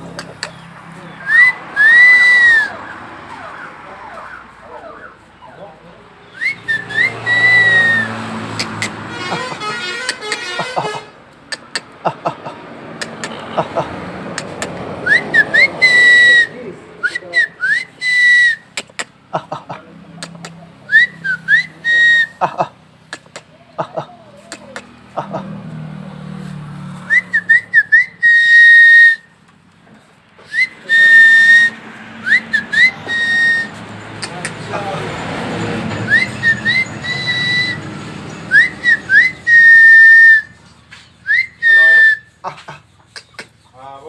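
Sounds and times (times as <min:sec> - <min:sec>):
parrots chattering: 0:00.0 - 0:01.8, 0:07.1 - 0:16.1, 0:18.7 - 0:20.7, 0:22.4 - 0:25.5, 0:33.7 - 0:35.3, 0:42.3 - 0:43.8
parrot rising whistles: 0:01.2 - 0:03.0, 0:06.4 - 0:08.9, 0:15.0 - 0:16.5, 0:30.4 - 0:33.8, 0:36.1 - 0:37.9, 0:38.5 - 0:40.6.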